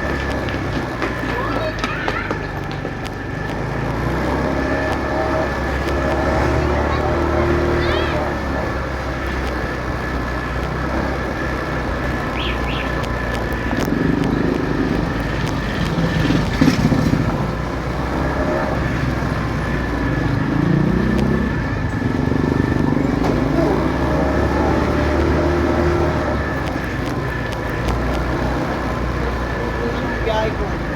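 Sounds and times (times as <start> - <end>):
motorcycle engine running: 0.0 - 30.9
road rumble: 0.0 - 30.9
loud clatter: 13.0 - 18.0.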